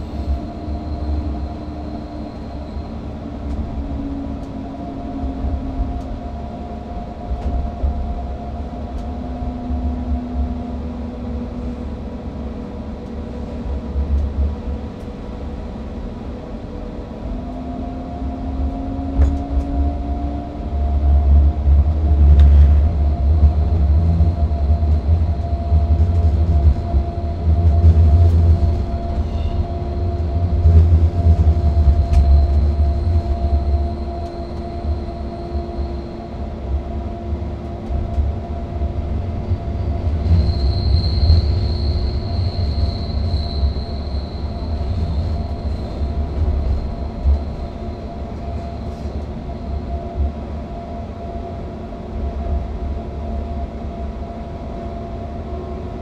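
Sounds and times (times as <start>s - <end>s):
electric train running rumble: 0.0s - 56.0s
high wheel squeal: 39.8s - 49.9s.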